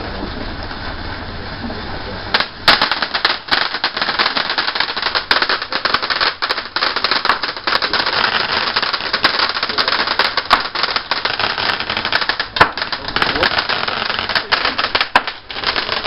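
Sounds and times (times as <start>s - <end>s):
firework crackling: 2.3s - 16.0s.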